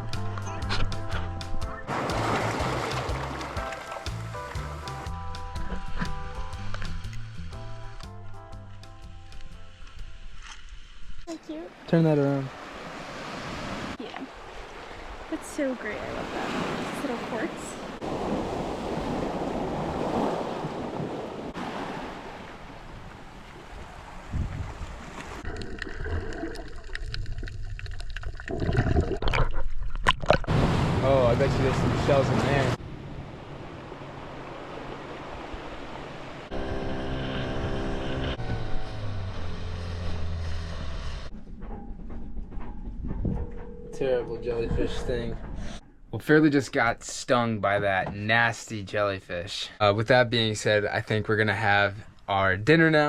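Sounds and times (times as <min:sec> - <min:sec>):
boat motor running: 0:00.0 - 0:09.6, 0:36.3 - 0:45.8
water noise: 0:00.0 - 0:49.1
wind: 0:00.0 - 0:53.0
sea waves washing onto shore: 0:01.9 - 0:05.1, 0:11.7 - 0:25.5, 0:30.5 - 0:36.6
wind buffeting microphone: 0:22.6 - 0:25.5.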